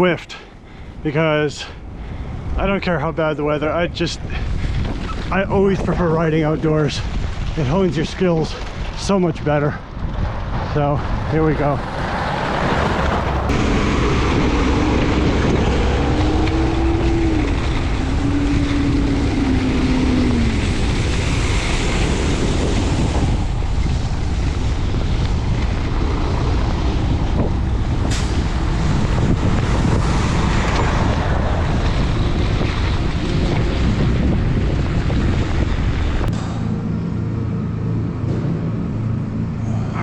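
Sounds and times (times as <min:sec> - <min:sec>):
bicycle road rumble: 0:00.0 - 0:40.0
wind buffeting microphone: 0:00.0 - 0:40.0.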